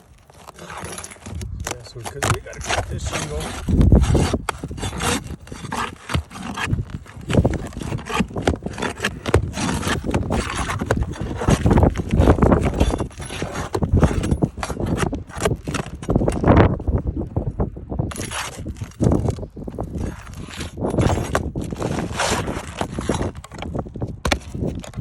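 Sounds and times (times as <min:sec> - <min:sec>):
bar prying up roof shingle: 0:00.4 - 0:16.6.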